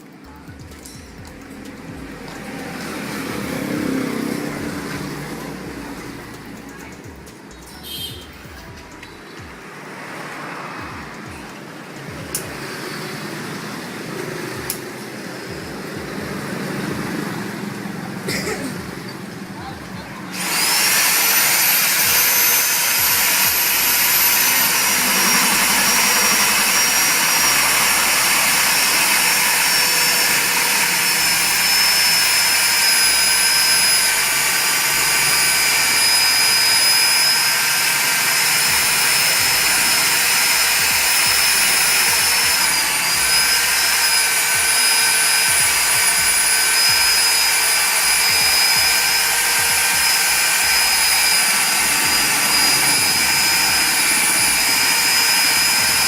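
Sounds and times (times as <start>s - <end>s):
drill motor running with whine: 0.0s - 56.0s.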